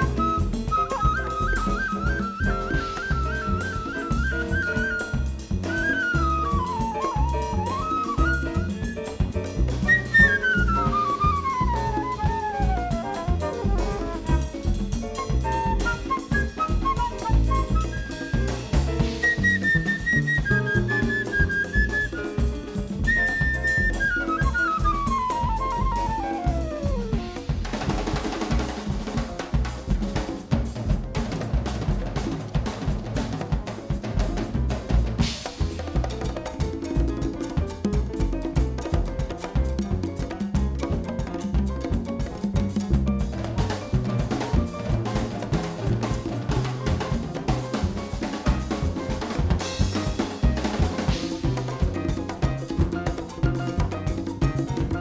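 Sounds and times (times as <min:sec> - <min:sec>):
wind instrument descending run: 0:00.0 - 0:08.9, 0:22.8 - 0:27.5
bass line: 0:00.0 - 0:55.0
drum kit playing: 0:00.0 - 0:55.0.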